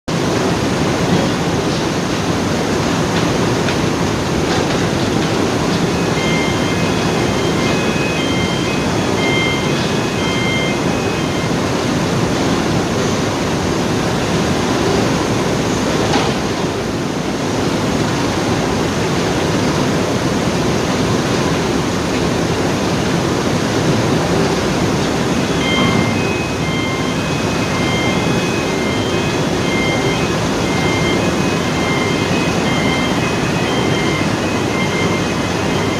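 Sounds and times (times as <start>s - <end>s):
heavy industrial machinery roaring: 0.1s - 35.9s
short high beeps: 6.0s - 11.7s, 25.4s - 35.9s.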